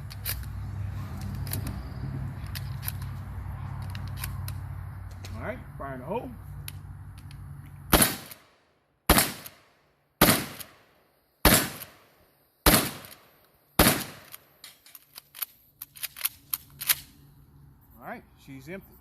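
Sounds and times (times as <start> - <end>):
shotgun shots: 7.9 - 14.4.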